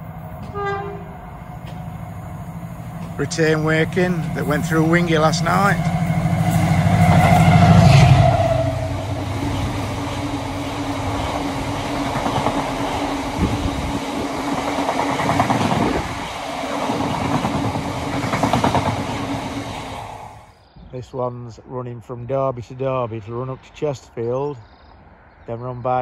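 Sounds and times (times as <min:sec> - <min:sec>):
diesel locomotive engine: 0:00.0 - 0:20.6.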